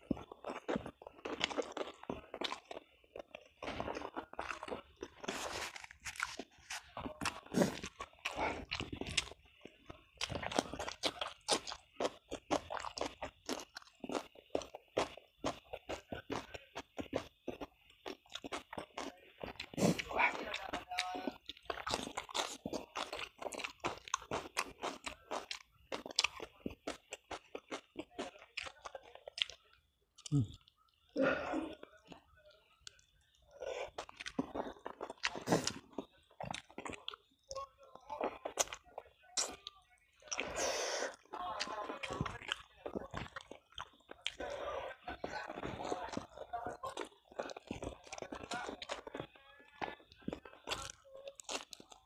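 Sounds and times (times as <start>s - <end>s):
person chewing with crunching: 0.0s - 52.0s.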